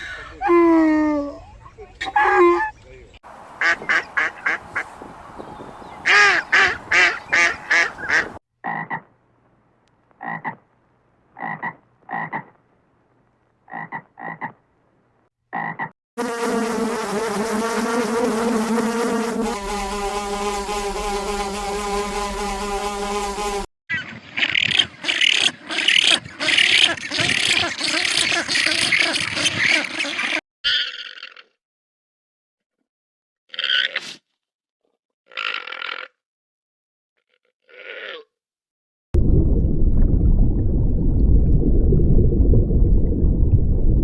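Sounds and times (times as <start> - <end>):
rapid pulsing animal calls: 3.6 - 8.4.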